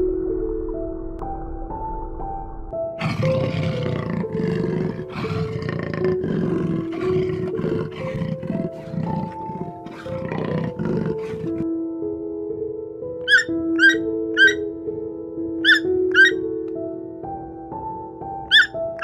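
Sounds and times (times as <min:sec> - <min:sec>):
background music with sustained notes: 0:00.0 - 0:19.0
large animal roaring and grunting: 0:03.0 - 0:11.6.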